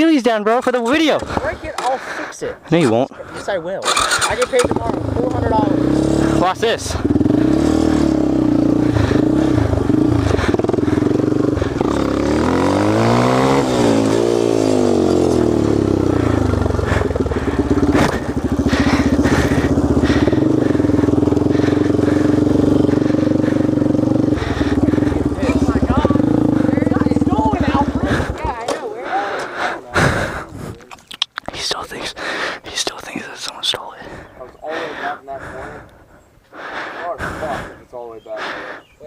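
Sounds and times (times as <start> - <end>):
dirt bike engine revving: 3.8 - 28.7
engine idling: 3.9 - 30.5.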